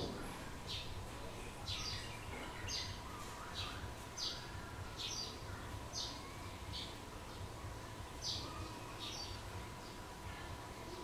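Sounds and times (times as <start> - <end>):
small bird chirping: 1.6 - 7.5.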